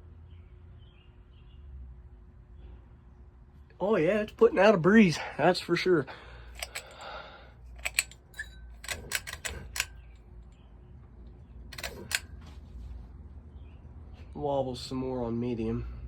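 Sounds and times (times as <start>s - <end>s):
sharp clicks: 6.6s - 7.2s, 7.8s - 10.2s, 11.7s - 12.4s.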